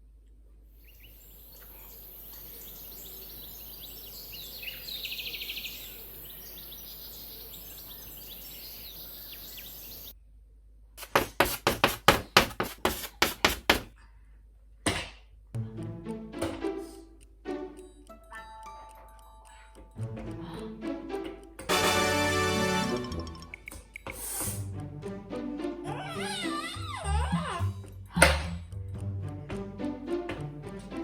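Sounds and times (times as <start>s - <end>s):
high bird chirps: 0.8s - 10.2s
fast chirping trill: 0.9s - 10.1s
loud sharp knocks: 11.1s - 13.9s.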